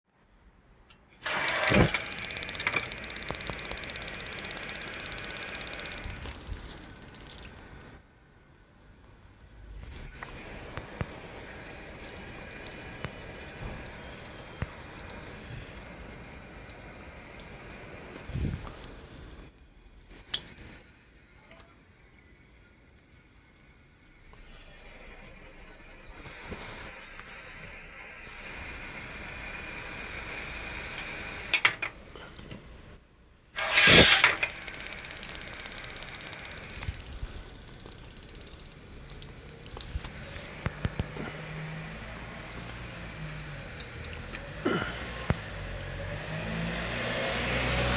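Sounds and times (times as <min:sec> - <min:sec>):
sharp clicks: 0:00.9 - 0:07.6, 0:33.6 - 0:41.2
gas water heater hissing: 0:01.2 - 0:08.1, 0:09.9 - 0:33.0, 0:33.6 - 0:46.7
fast even ticking: 0:02.0 - 0:07.4, 0:34.1 - 0:40.0
gas burner whoosh: 0:25.6 - 0:31.6, 0:33.6 - 0:37.5.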